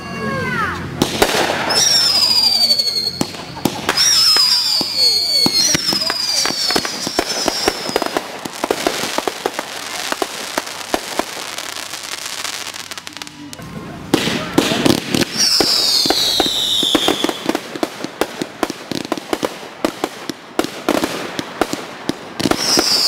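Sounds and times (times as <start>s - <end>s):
firework pops and crackling: 0.9s - 23.0s
firework whistles falling in pitch: 1.5s - 8.2s, 14.5s - 17.6s, 22.4s - 23.0s.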